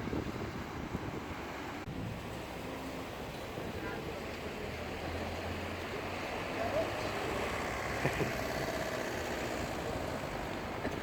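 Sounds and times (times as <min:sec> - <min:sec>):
traffic: 0:00.0 - 0:11.0
wind: 0:00.0 - 0:11.0
faint voices of passers-by: 0:02.2 - 0:11.0.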